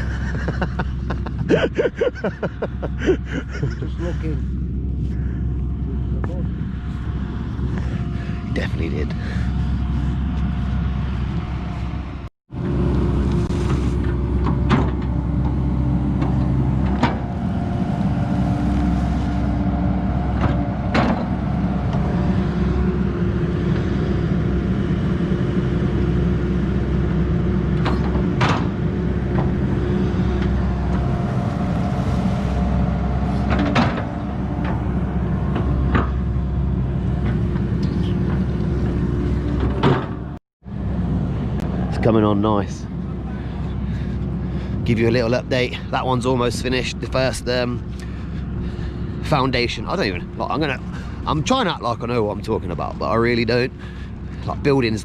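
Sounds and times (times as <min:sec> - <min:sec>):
digger engine running: 0:00.0 - 0:55.0.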